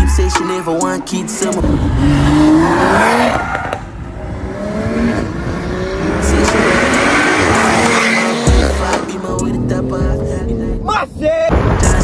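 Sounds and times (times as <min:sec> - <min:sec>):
tyres squealing: 0:00.0 - 0:01.6
car engine revving hard: 0:01.0 - 0:10.7.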